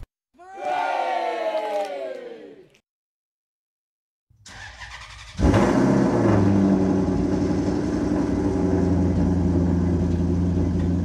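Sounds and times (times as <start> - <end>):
engine humming: 4.4 - 11.0.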